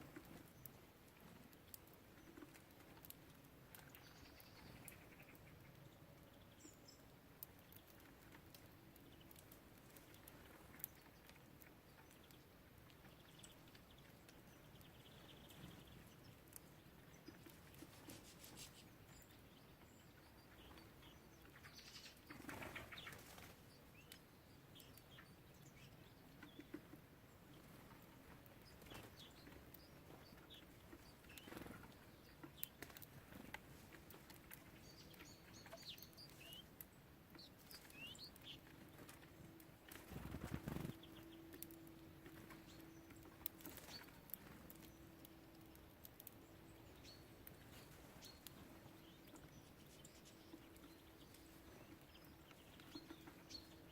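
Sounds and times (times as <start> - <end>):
small clicks and taps: 6.6 - 18.8, 27.8 - 49.6
wings fluttering: 17.4 - 18.9, 22.3 - 23.7, 30.9 - 32.0, 38.9 - 41.2, 43.4 - 44.9.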